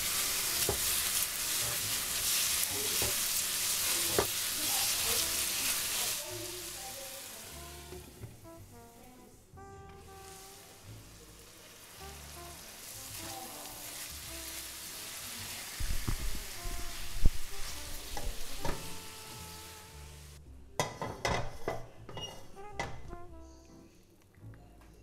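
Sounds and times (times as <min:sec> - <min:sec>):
food sizzling in a wok: 0:00.0 - 0:09.0, 0:09.9 - 0:21.7
soft background music: 0:00.0 - 0:25.0
spatula scraping and knocking pan: 0:00.4 - 0:03.5, 0:20.8 - 0:23.1.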